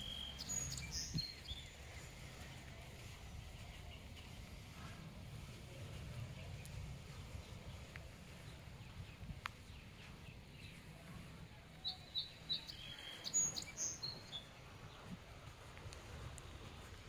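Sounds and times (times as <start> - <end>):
small bird chirping: 0.0 - 2.2, 11.8 - 15.1
low background rumble: 0.0 - 17.0.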